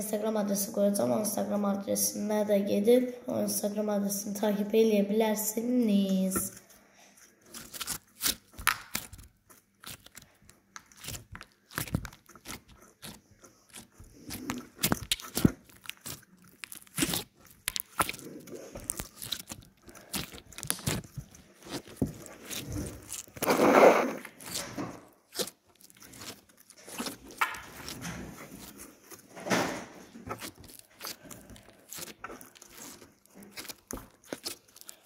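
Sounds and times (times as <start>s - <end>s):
hands squishing slime: 7.2s - 35.0s.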